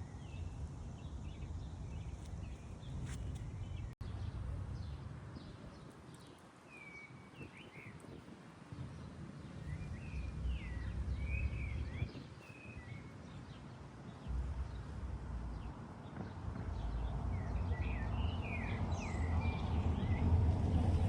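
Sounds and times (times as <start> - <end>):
low rumble: 16.4 - 21.0.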